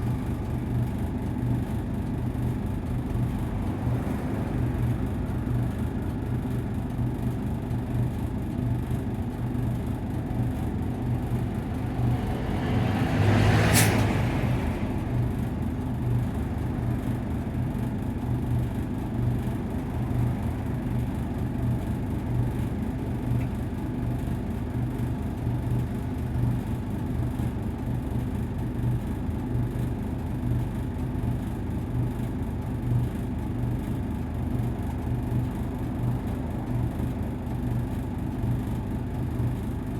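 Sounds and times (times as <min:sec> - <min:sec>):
bus diesel engine droning: 0:00.0 - 0:26.2, 0:30.8 - 0:39.9
short sharp hiss: 0:13.7 - 0:14.0.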